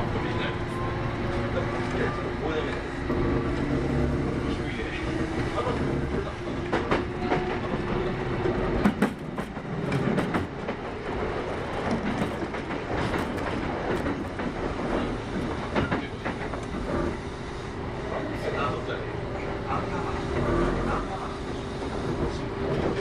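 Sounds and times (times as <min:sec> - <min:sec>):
electric train rumble: 0:00.0 - 0:23.0
wheels clicking over rail joints: 0:08.7 - 0:17.2.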